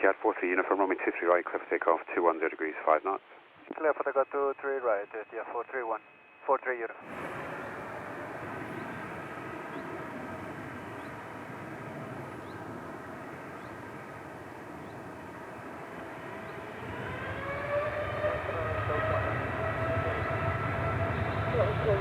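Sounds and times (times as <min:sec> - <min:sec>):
jet engines whining: 0:07.0 - 0:22.0.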